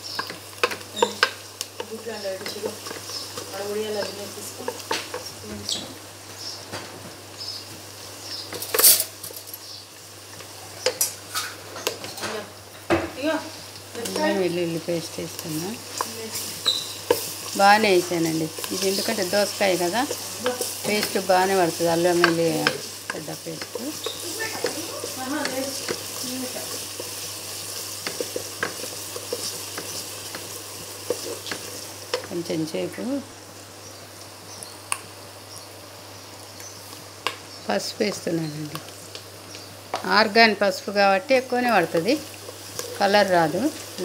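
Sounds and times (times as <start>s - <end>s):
onions sizzling in hot oil: 0.0s - 44.0s
wooden spatula scraping pot: 0.1s - 5.4s, 14.0s - 32.4s, 41.5s - 44.0s.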